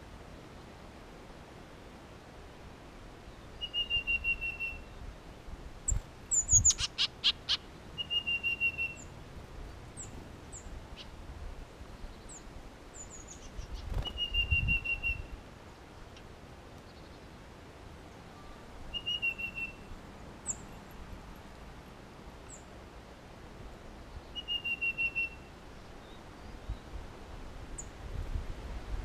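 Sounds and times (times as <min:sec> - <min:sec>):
songbird singing a note run: 0:12.0 - 0:15.4
wingbeats fluttering: 0:13.4 - 0:14.5.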